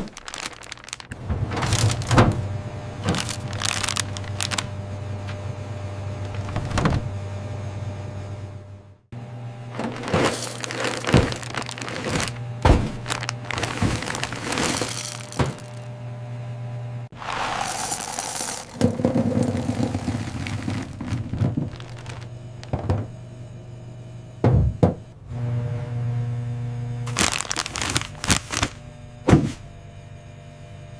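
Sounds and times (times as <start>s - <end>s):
cartoon knocks thuds and cracks: 10.9s - 14.4s, 29.3s - 29.6s.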